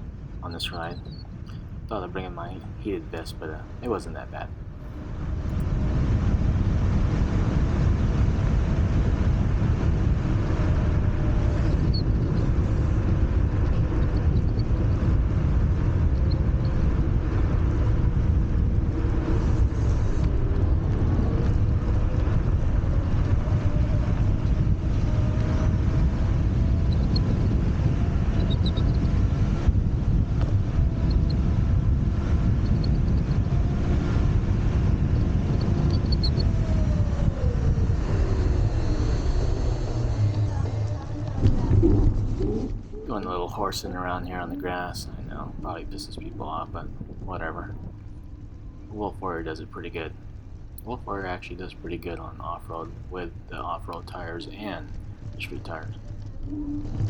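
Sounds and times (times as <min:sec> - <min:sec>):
wind rushing over microphone: 0:00.0 - 0:57.0
electric scooter motor whine: 0:04.5 - 0:43.4, 0:54.2 - 0:57.0.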